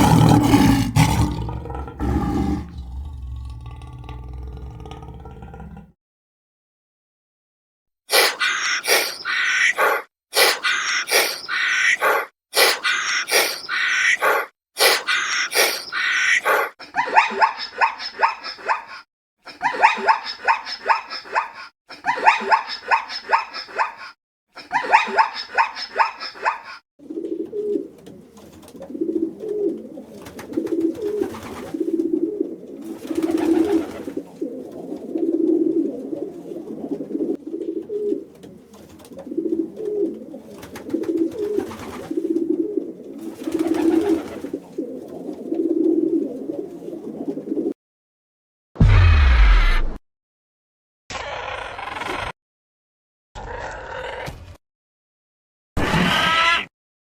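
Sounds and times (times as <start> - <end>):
animal calls: 0.0 - 3.8, 8.1 - 26.8
pigeon cooing: 0.0 - 5.4, 8.1 - 16.7, 25.0 - 47.8.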